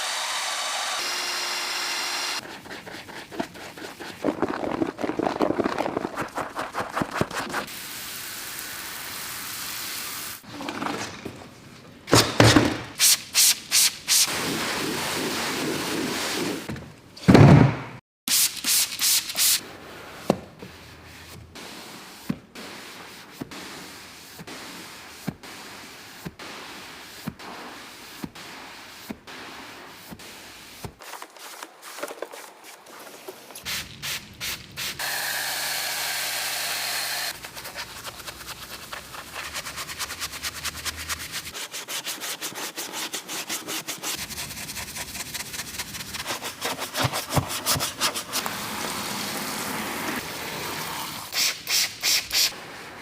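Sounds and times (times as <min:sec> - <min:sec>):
scrubbing and rubbing: 0:02.4 - 0:07.7, 0:37.3 - 0:50.3.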